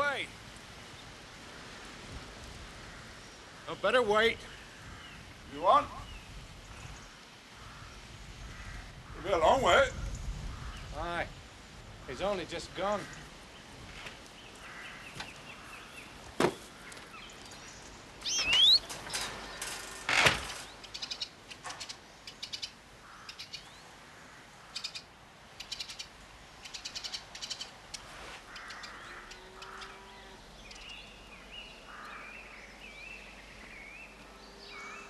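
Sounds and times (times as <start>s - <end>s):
small birds chirping: 4.4s - 35.0s.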